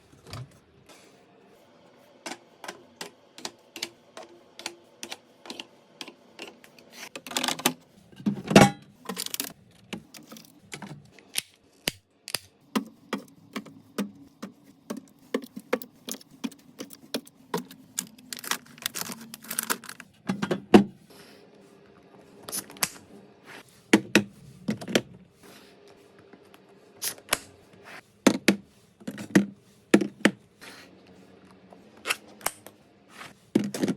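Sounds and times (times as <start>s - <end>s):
plastic containers clicking and knocking: 7.2s - 11.0s, 12.7s - 20.9s, 28.3s - 30.4s, 33.6s - 33.9s.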